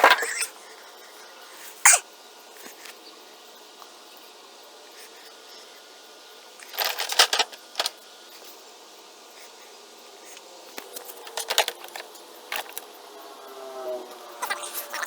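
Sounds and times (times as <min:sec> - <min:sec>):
faint steady hum: 0:00.0 - 0:15.0
metallic clinking and rattling: 0:06.6 - 0:07.9.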